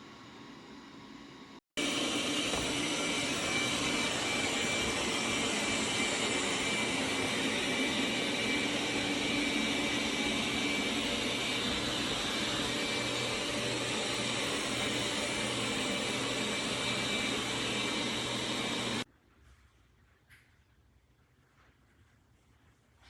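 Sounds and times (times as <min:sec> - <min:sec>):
robot vacuum whirring: 0:01.8 - 0:19.0.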